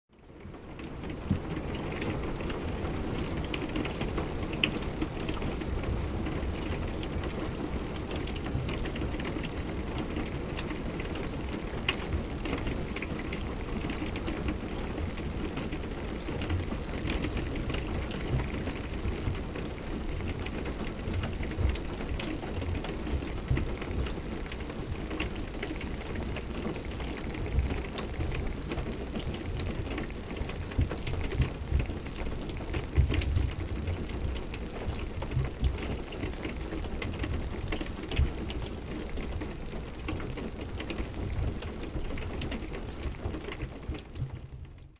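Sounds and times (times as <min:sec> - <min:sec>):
steady rain with ticking drops: 0:00.1 - 0:44.9.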